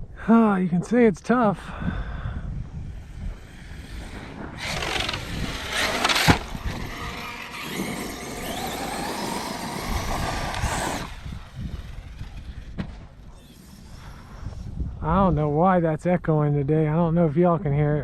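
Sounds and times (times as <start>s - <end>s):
tyre and drivetrain noise: 2.9s - 14.0s
electric motor whine: 3.0s - 14.7s.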